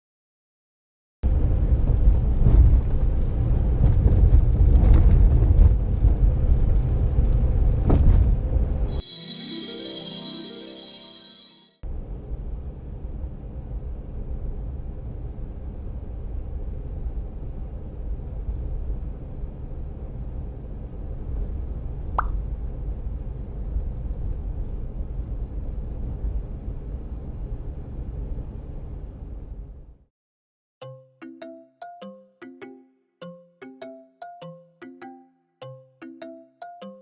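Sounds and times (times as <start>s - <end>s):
road and engine rumble: 1.3s - 8.9s.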